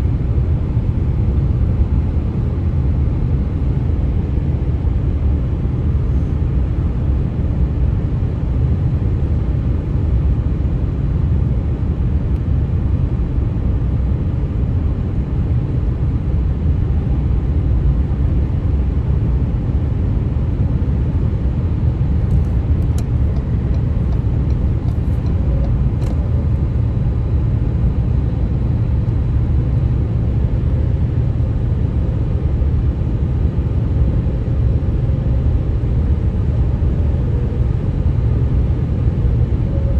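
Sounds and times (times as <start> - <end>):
tyre and road noise: 22.0 - 26.6.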